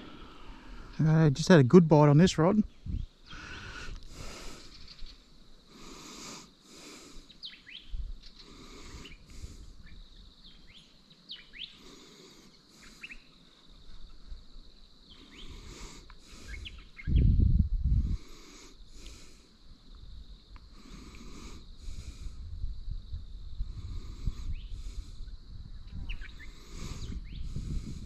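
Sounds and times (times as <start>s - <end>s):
wind rumble on microphone: 2.2s - 5.2s, 7.8s - 8.3s, 16.4s - 19.0s, 19.8s - 20.7s, 21.3s - 28.0s
small birds chirping: 2.6s - 17.4s, 23.6s - 28.0s.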